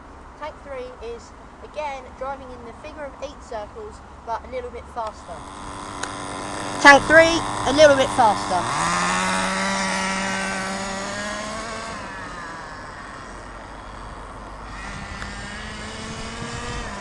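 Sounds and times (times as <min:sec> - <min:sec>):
small nitro engine running: 0:05.2 - 0:17.0.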